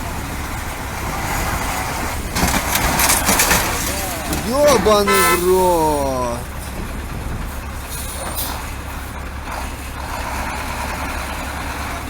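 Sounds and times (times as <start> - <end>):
road noise: 0.0 - 12.0
truck engine hum: 0.0 - 12.0.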